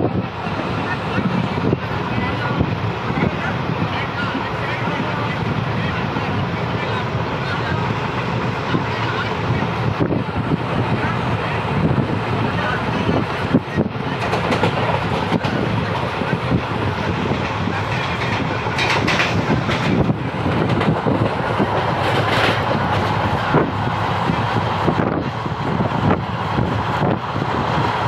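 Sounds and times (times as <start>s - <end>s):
train rumbling: 0.0s - 28.0s
wheels clattering over rail joints: 17.4s - 23.3s.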